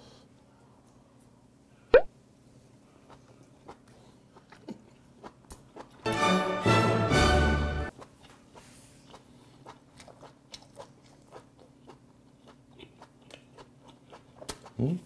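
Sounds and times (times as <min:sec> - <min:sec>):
person chewing with mouth clicks: 0:02.9 - 0:06.0, 0:07.9 - 0:15.0.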